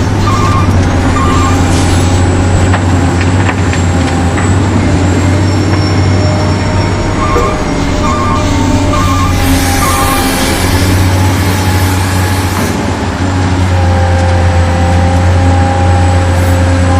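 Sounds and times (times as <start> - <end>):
repeated beeps: 0.2 - 1.7, 7.2 - 10.3.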